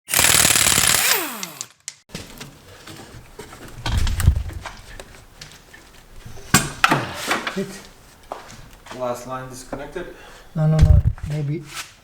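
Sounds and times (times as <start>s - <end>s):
power tool motor whine: 0.1s - 1.7s
low rumbling thump: 10.7s - 11.3s.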